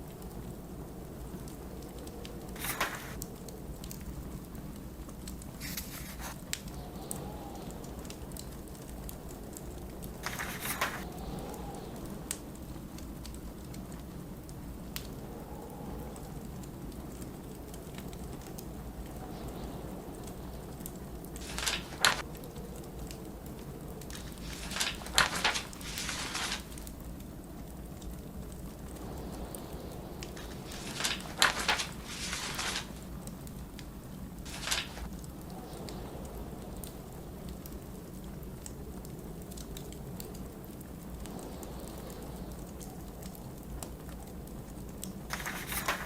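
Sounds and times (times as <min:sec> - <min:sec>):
blizzard wind howling: 0:00.0 - 0:46.0
fireplace crackling: 0:00.0 - 0:46.0
book pages turning: 0:02.6 - 0:03.2, 0:05.6 - 0:06.4, 0:10.2 - 0:11.1, 0:21.4 - 0:22.2, 0:24.1 - 0:26.9, 0:30.3 - 0:33.0, 0:34.5 - 0:35.1, 0:45.3 - 0:46.0.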